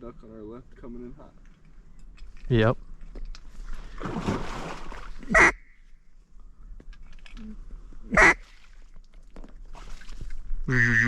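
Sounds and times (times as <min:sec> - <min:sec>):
duck call quacks: 0:05.3 - 0:05.7, 0:08.1 - 0:08.4, 0:10.7 - 0:11.0.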